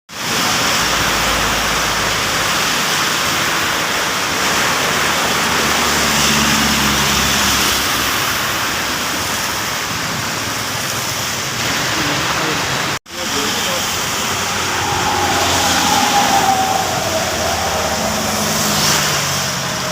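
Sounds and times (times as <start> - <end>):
heavy rain falling: 8.0 - 19.9
vehicle engine passing: 13.2 - 19.9.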